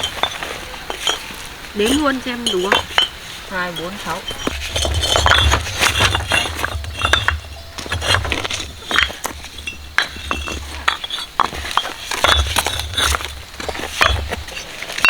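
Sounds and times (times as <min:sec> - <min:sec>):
hard objects clinking and knocking: 0:00.0 - 0:15.0
low rumble: 0:04.2 - 0:10.8.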